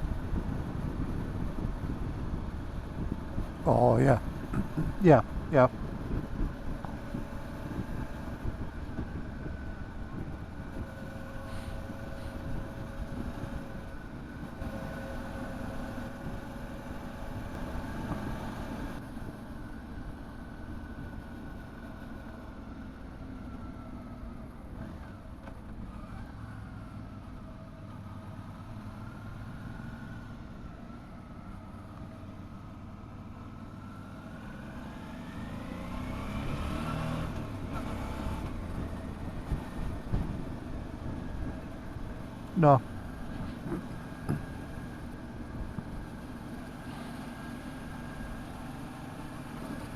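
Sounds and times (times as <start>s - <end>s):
wind and road rumble: 0.0s - 49.9s
motorcycle engine accelerating: 33.8s - 49.9s.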